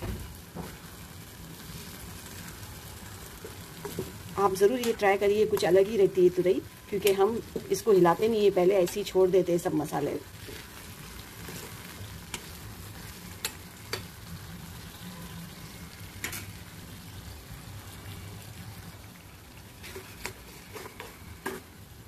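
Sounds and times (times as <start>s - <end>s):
vegetables sizzling in a pan: 0.0s - 22.0s
metal spoon scraping a pan: 10.4s - 14.2s, 19.8s - 21.8s.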